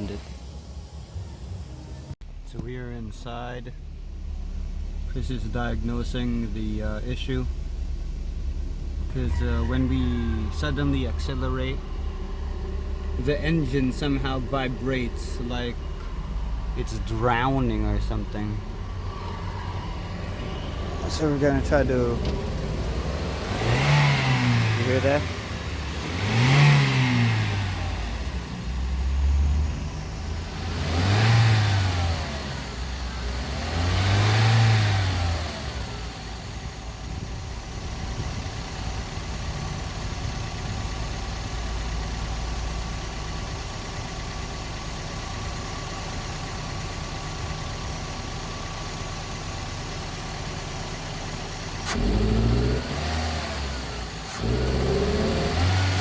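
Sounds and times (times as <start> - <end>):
car engine revving and idling: 0.0 - 56.0.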